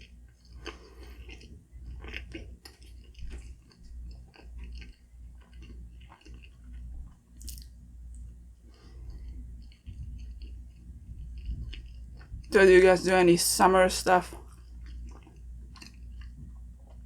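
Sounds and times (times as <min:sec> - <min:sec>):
close-miked chewing: 0:00.0 - 0:13.6, 0:14.2 - 0:17.0.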